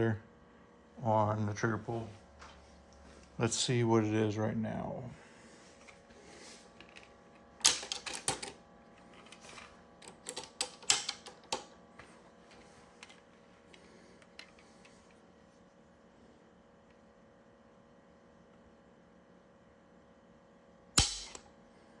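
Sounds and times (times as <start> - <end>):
rifle action clicks: 21.0 - 21.4.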